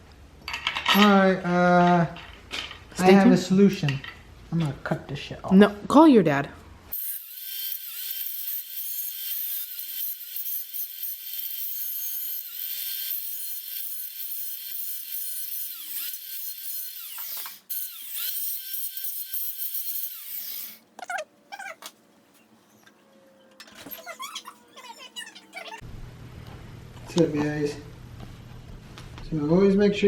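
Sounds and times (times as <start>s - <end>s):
power tool motor whine: 6.9s - 20.8s.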